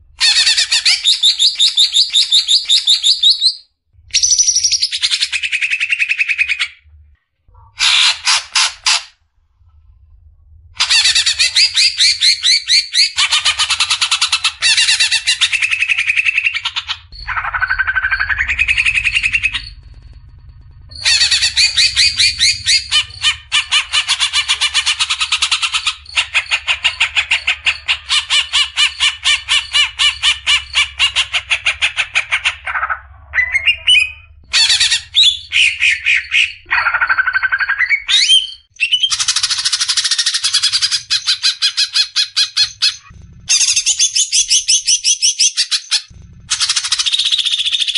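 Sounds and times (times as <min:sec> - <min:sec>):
bird gliding whistled phrases: 0:14.7 - 0:26.1.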